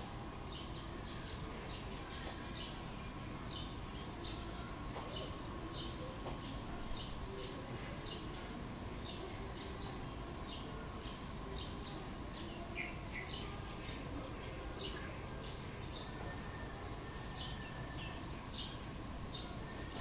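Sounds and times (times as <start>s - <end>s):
small birds chirping: 0.4s - 20.0s.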